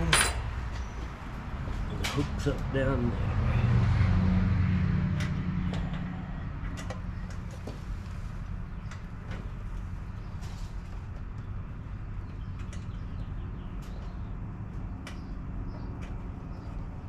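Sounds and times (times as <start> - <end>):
clicks and taps on engine parts: 12.4 - 16.6.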